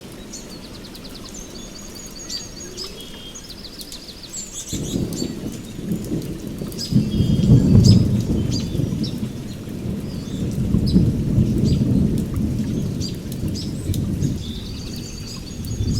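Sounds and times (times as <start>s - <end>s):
steady rain: 0.0s - 15.9s
thunder rumbling: 4.6s - 15.9s.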